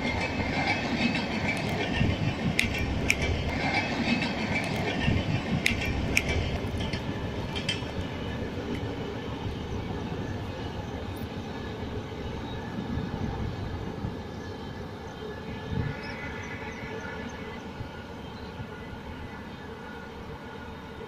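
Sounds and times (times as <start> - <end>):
train wheels rumbling on rail: 0.0 - 21.0
sharp clicks: 2.5 - 3.6, 5.6 - 8.0.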